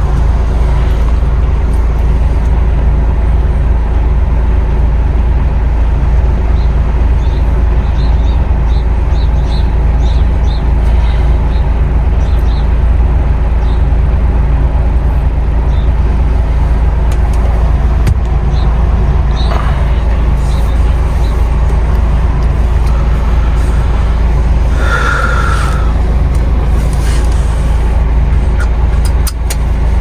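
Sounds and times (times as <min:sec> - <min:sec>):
truck diesel engine drone: 0:00.0 - 0:30.0.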